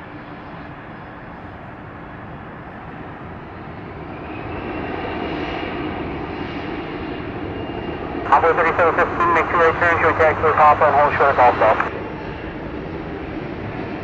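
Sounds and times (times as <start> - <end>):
jet airliner engine noise: 0.0 - 14.0
high engine whine: 8.3 - 12.0.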